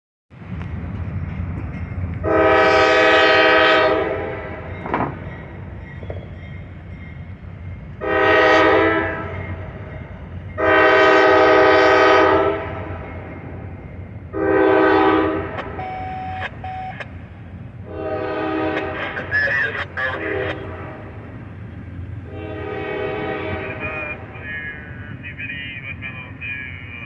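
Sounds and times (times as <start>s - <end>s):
train rumble: 0.3s - 27.0s
locomotive air horn blasts: 2.2s - 4.7s, 8.0s - 9.4s, 10.6s - 13.0s, 14.3s - 17.1s, 17.8s - 21.2s, 22.3s - 24.2s.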